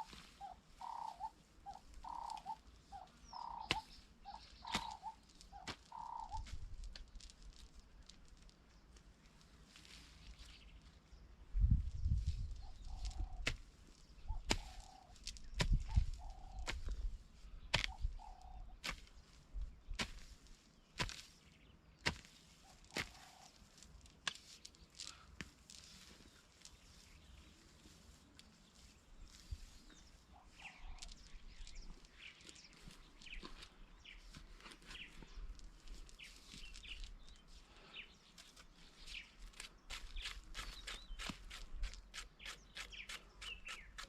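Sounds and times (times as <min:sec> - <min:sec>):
hoe chopping into wet soil: 0:04.7 - 0:05.0, 0:14.4 - 0:14.8, 0:17.7 - 0:18.0, 0:18.8 - 0:19.1, 0:20.0 - 0:20.4, 0:21.0 - 0:21.4, 0:22.0 - 0:23.3.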